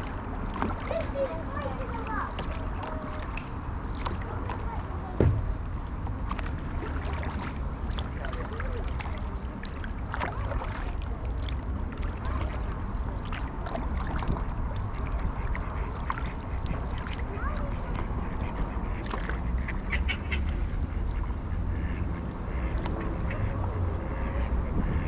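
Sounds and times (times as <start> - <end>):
wind and water rumble: 0.0 - 25.0
thump: 5.2 - 5.7
ducks quacking: 15.0 - 25.0.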